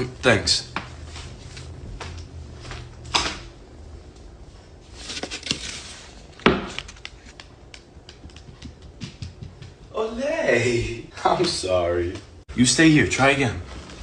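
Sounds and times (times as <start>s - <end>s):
sharp knocks and clatters: 7.4s - 10.0s.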